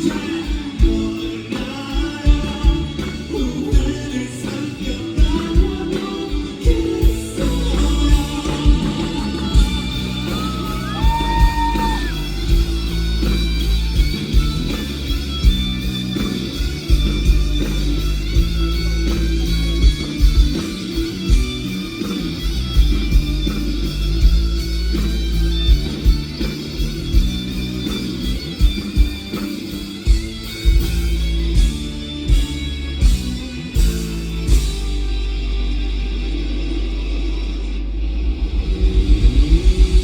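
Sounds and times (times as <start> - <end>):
lead guitar: 0.0 - 40.0
live rock band instrumental: 0.0 - 40.0.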